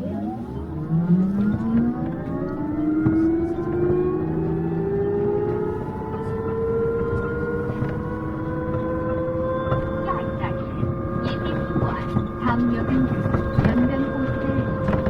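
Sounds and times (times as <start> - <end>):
bus drivetrain whine rising: 0.0 - 15.0.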